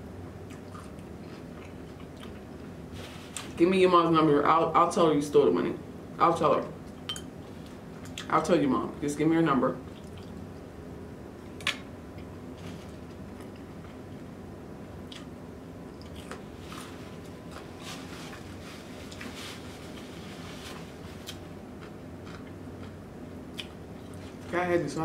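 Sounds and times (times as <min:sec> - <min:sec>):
wet chewing squishes: 0:00.4 - 0:02.7, 0:09.9 - 0:10.4, 0:15.0 - 0:18.4.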